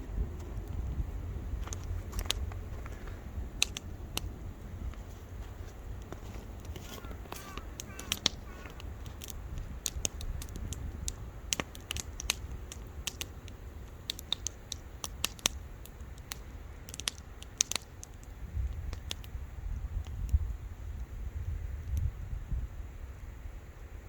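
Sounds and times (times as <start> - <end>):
steady low rumble: 0.0 - 23.5
wood fire snaps and pops: 1.6 - 5.1, 6.0 - 20.4.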